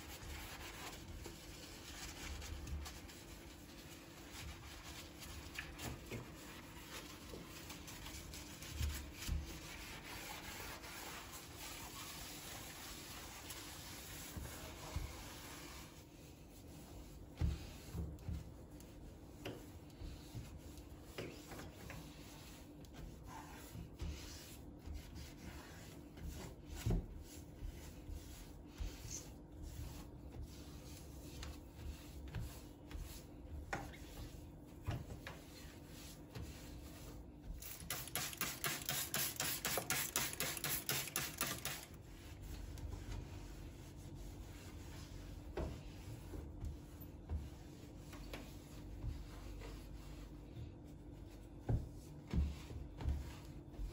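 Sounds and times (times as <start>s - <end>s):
rubbing and wiping: 0.0s - 53.9s.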